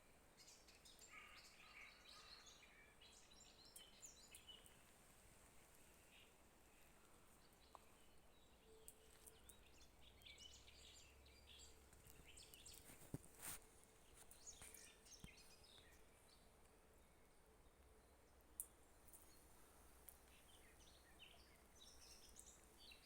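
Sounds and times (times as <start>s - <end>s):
songbirds chirping: 0.0s - 23.0s.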